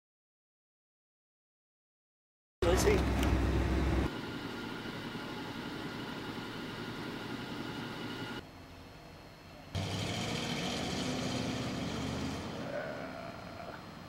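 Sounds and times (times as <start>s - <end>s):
car engine driving past: 9.8s - 13.8s.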